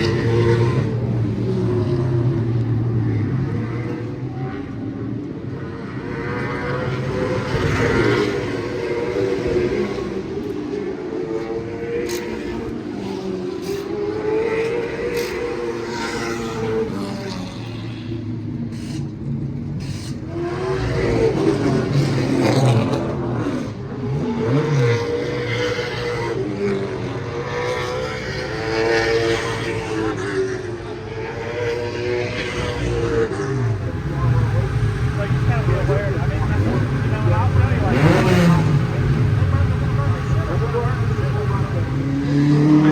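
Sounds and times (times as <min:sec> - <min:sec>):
race cars passing by: 0:00.0 - 0:42.9.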